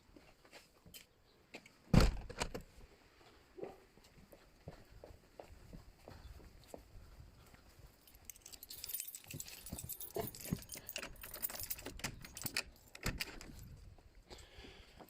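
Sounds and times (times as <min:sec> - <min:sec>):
small metal objects jangling: 0:08.0 - 0:13.8.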